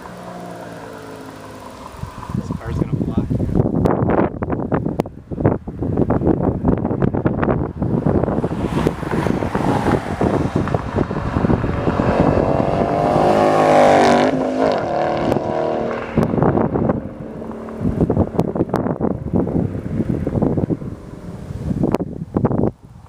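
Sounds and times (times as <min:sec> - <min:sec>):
car engine passing by: 0:00.0 - 0:03.3, 0:07.4 - 0:22.0
wind buffeting microphone: 0:01.8 - 0:23.0.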